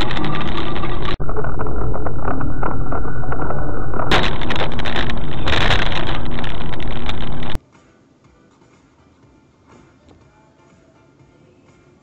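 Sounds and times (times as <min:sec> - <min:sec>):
car engine and tyre noise: 0:00.0 - 0:07.6.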